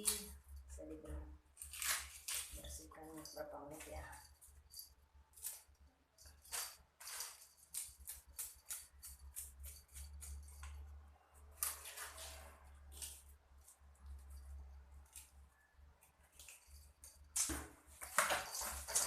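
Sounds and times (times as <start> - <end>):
knife scraping fish scales: 7.0 - 10.8.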